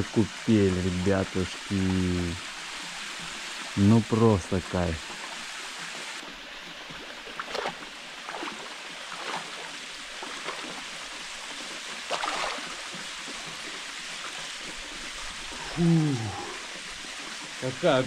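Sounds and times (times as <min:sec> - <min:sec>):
water splashes: 0:00.0 - 0:18.0
waterfall rushing: 0:14.9 - 0:18.0.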